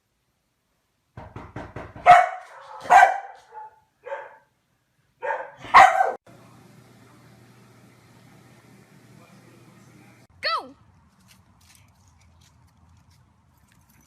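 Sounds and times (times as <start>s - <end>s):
dog barking: 2.0s - 4.5s, 5.2s - 6.2s.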